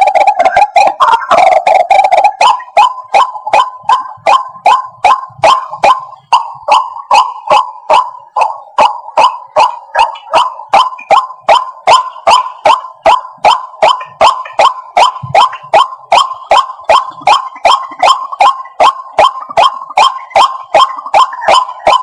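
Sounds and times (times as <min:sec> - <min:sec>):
waterhen calling: 0:00.0 - 0:08.1.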